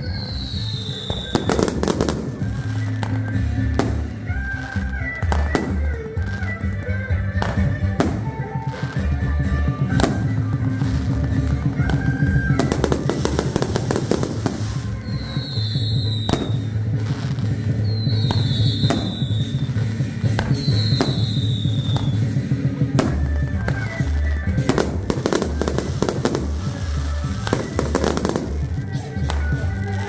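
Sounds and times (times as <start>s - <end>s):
falling firework whistles: 0.0s - 4.0s, 11.9s - 16.8s, 17.5s - 22.4s
fireworks bangs and crackling: 0.0s - 30.0s.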